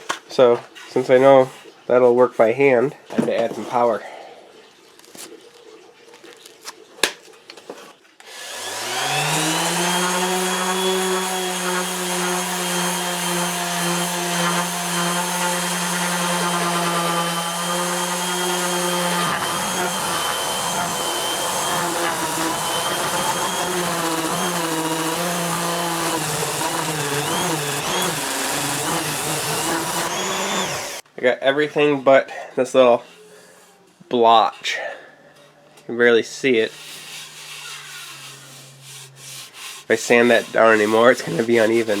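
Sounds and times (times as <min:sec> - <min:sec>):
power sander motor whine: 0:08.3 - 0:31.0.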